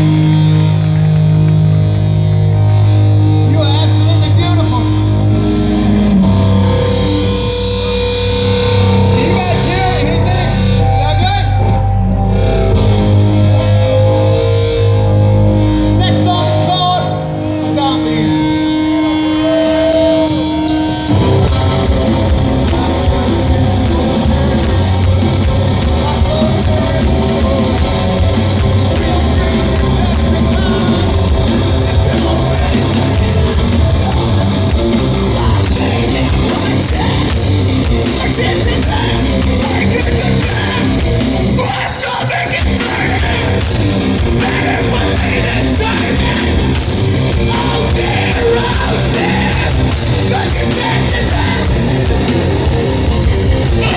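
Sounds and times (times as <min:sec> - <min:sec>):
heavy rock band playing live: 0:00.0 - 0:53.9
person singing: 0:16.5 - 0:53.9.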